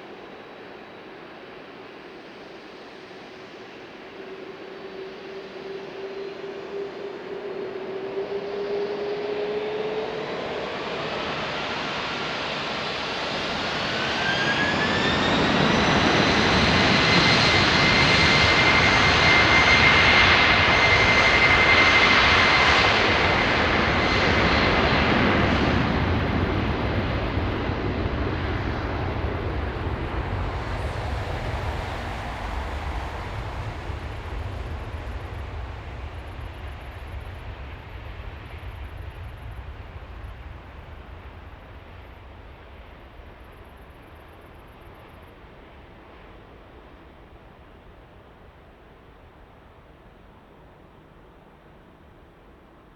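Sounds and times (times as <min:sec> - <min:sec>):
jet engines spooling up: 0:13.4 - 0:43.0.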